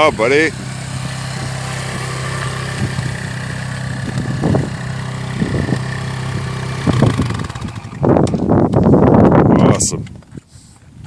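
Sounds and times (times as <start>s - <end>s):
dirt bike engine idling: 0.0s - 9.4s.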